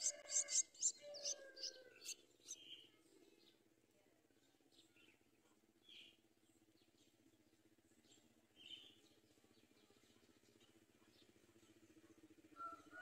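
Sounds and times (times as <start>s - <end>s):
faint bird chirps: 0.0s - 3.6s.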